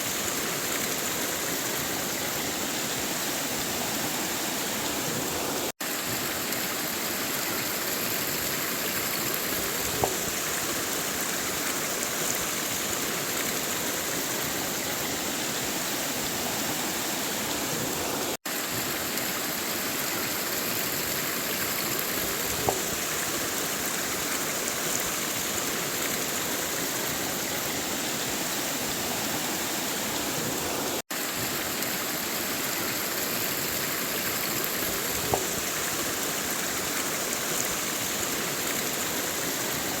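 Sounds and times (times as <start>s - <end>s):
river water flowing over rocks: 0.0s - 40.0s
small water splashes: 30.9s - 40.0s.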